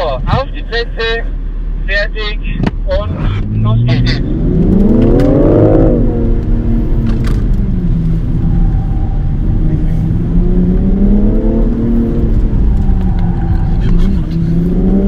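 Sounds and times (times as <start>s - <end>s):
car engine accelerating hard: 2.9s - 15.0s.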